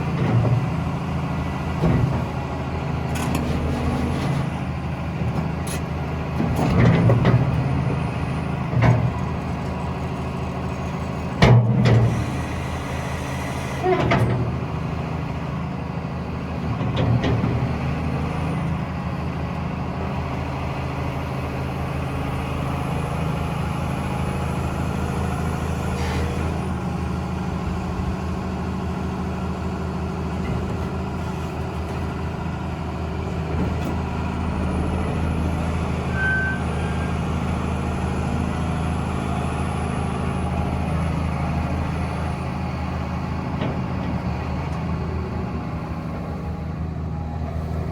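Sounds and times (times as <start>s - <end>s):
diesel engine running: 0.0s - 47.9s
short beep: 36.1s - 37.1s.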